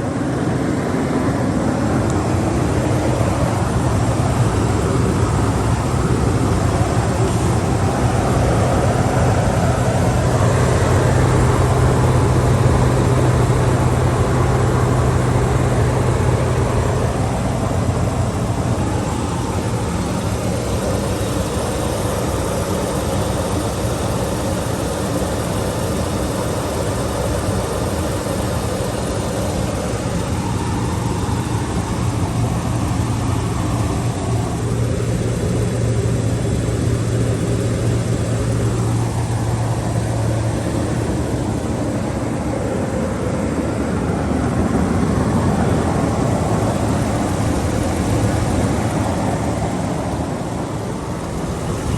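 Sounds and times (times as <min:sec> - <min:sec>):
car engine idling: 0:00.0 - 0:51.9.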